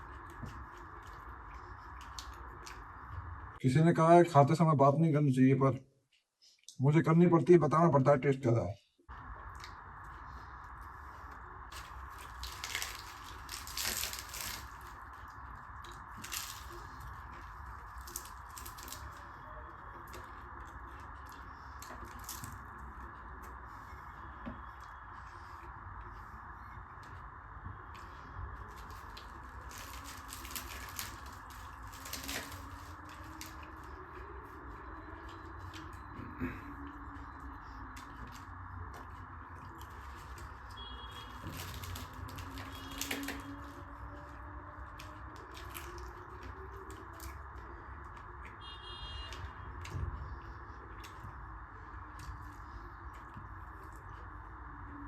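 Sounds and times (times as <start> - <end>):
person chewing food: 0.0 - 3.5, 49.2 - 55.0.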